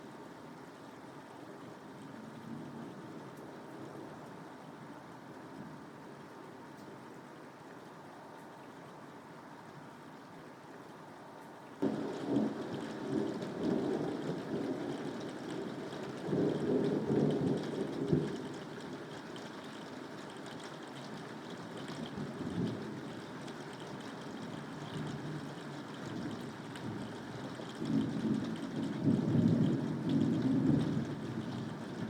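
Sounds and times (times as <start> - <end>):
steady rain: 0.0 - 32.0
thunder rumbling: 11.8 - 18.4.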